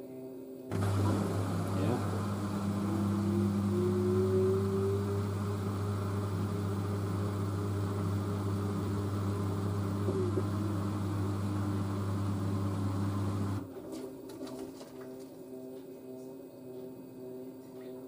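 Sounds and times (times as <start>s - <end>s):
washing machine spinning: 0.7s - 13.7s.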